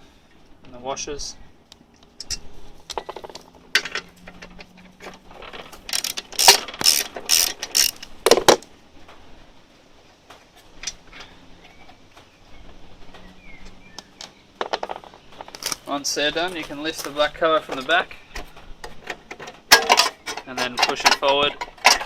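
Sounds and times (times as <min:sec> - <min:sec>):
socket wrench ratchet clicking: 0:05.9 - 0:08.1.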